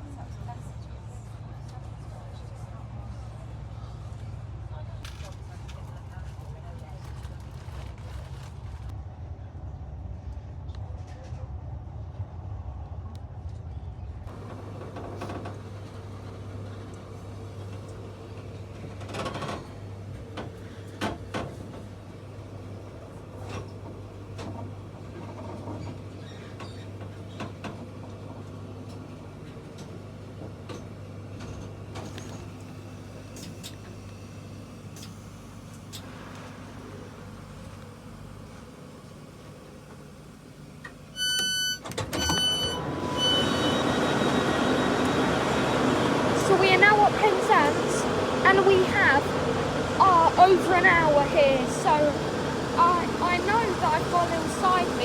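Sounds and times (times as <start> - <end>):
train interior hum: 0.0 - 55.0
short high electronic beeps: 41.2 - 44.9.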